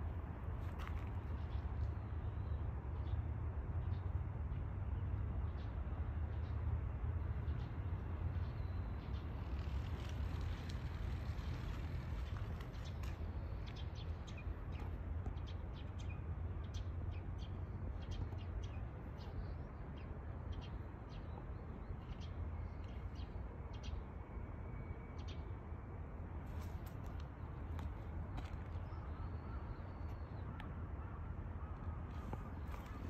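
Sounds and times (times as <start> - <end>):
low outdoor rumble: 4.9 - 24.2.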